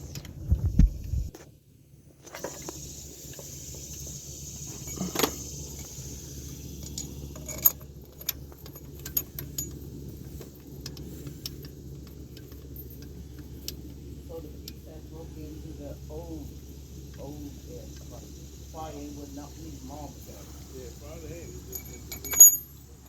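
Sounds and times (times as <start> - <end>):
steady low hum: 0.0 - 23.0
metallic clinks and clicks: 2.4 - 14.0, 21.4 - 22.9.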